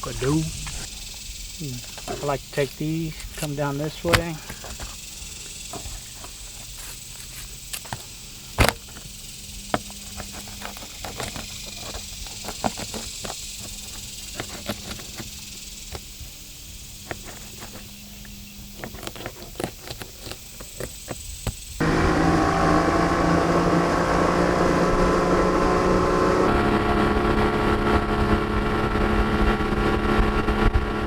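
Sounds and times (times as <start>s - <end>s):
knife cracking through fish ribs: 18.6s - 21.7s.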